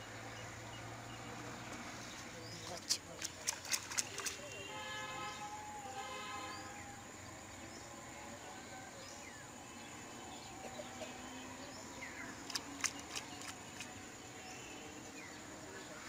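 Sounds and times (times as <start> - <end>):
birds chirping faintly: 0.0 - 16.0.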